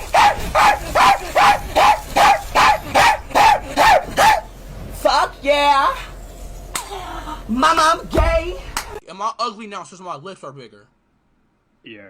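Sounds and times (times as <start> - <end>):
dog barking rapidly: 0.0 - 4.5.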